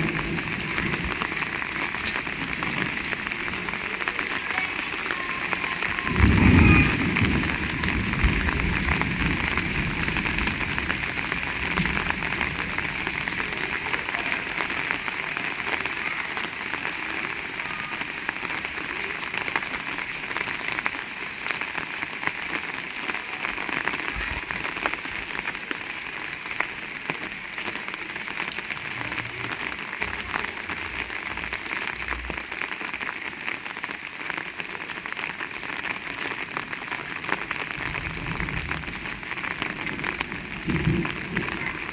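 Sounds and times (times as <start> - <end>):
heavy rain falling: 0.0 - 41.9.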